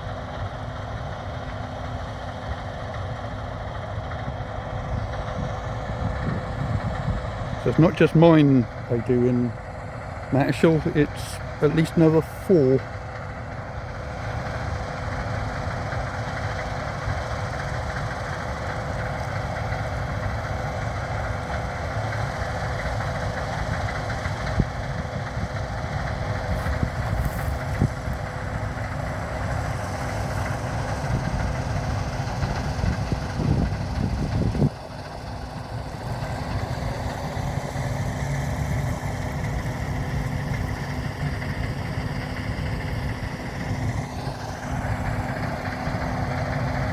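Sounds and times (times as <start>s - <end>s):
constant whine: 0.0s - 46.9s
heavy diesel machinery running: 0.0s - 46.9s.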